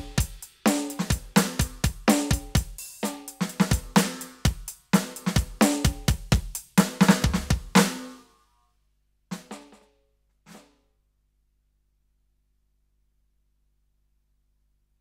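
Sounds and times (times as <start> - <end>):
electronic drum kit playing: 0.0 - 8.2.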